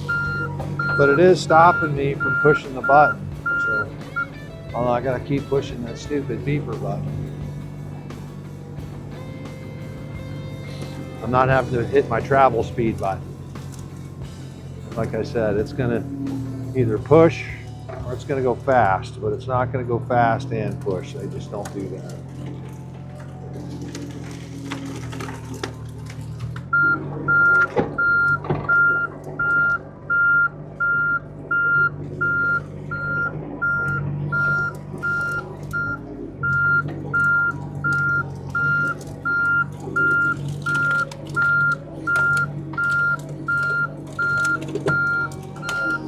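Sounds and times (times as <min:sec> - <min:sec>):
high-pitched reversing alarm beeping: 0:00.0 - 0:04.4, 0:26.7 - 0:46.0
diesel engine running: 0:00.0 - 0:46.0.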